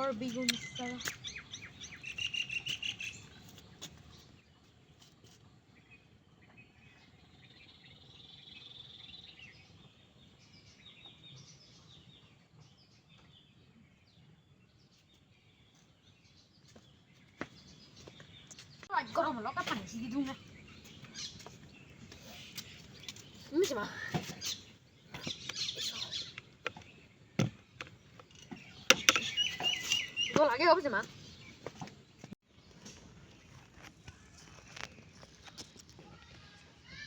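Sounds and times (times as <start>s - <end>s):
birds chirping and calling: 0.0s - 4.4s, 15.5s - 35.9s.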